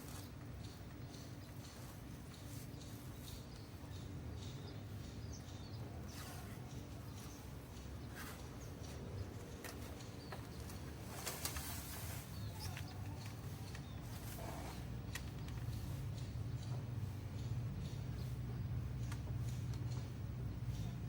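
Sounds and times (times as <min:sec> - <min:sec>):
low steady hum: 0:00.0 - 0:21.0
clicks and rustles: 0:06.0 - 0:16.3
faint bird chirps: 0:12.0 - 0:18.8.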